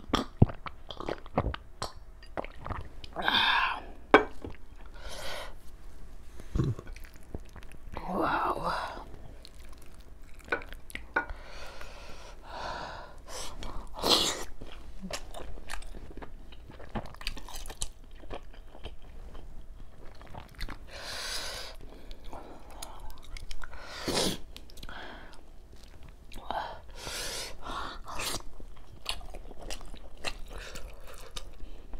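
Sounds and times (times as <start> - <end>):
chewing with wet mouth clicks: 9.4 - 11.2, 14.7 - 20.8, 22.1 - 23.8, 28.2 - 31.7.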